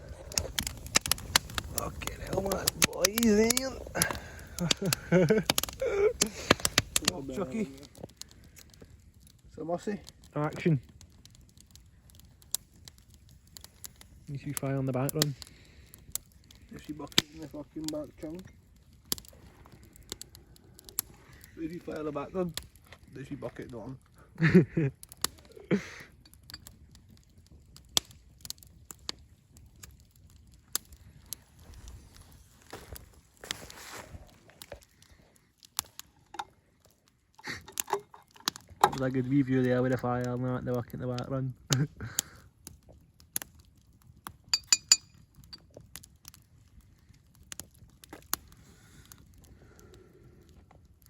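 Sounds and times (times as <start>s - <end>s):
campfire crackling: 0.0s - 51.0s
ringing clinks: 44.6s - 45.2s.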